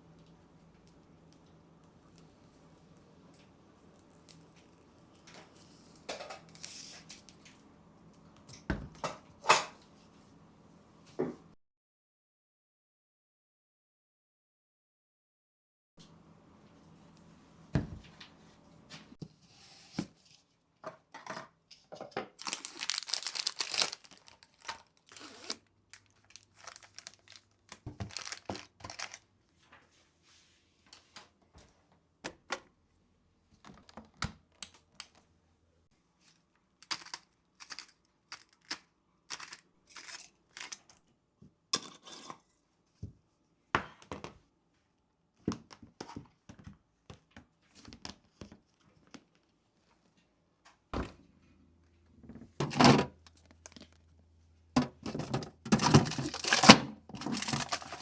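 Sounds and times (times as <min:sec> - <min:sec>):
plastic wrapping crinkling: 0:22.3 - 0:29.3, 0:36.8 - 0:40.9, 0:55.8 - 0:58.0.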